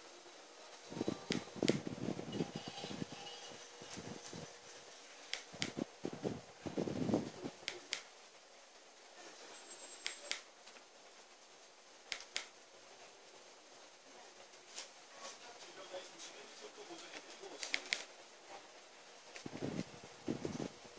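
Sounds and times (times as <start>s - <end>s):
faint hiss: 0.0s - 20.9s
wood fire crackling and popping: 1.3s - 3.2s.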